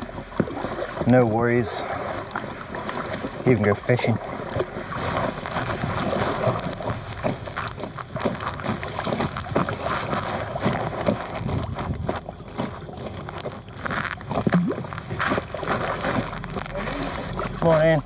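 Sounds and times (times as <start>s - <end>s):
paddle splashing in water: 0.0s - 18.0s
water dripping: 0.0s - 18.0s.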